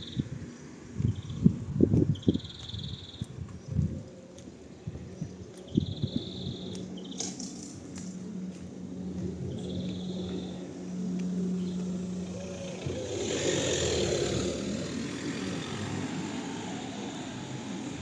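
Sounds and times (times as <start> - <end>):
motor vehicle humming: 0.0 - 18.0
vehicle passing by: 7.2 - 18.0.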